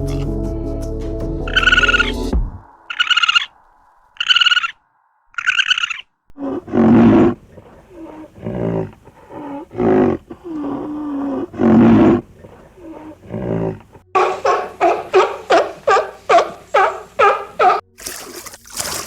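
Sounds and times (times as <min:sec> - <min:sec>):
large animal roaring and growling: 0:01.5 - 0:14.0.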